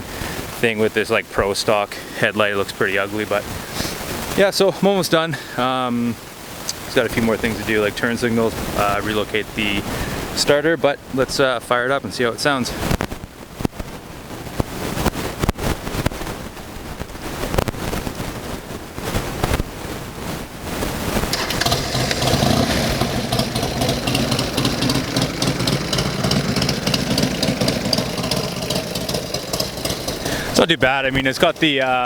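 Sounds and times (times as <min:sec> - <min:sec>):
motorcycle engine idling unevenly: 0:21.3 - 0:32.0.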